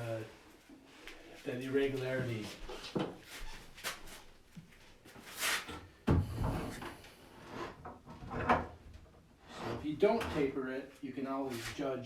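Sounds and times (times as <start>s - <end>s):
wood scraping: 9.4s - 10.6s.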